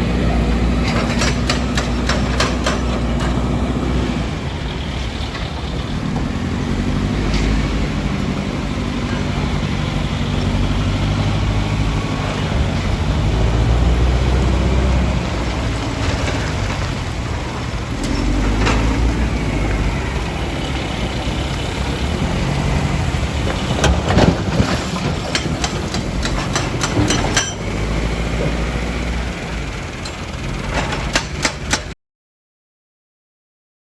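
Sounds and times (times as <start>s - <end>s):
diesel engine running: 0.0s - 32.0s
sharp metal clanks and knocks: 0.8s - 3.6s, 23.7s - 27.8s, 30.0s - 32.0s.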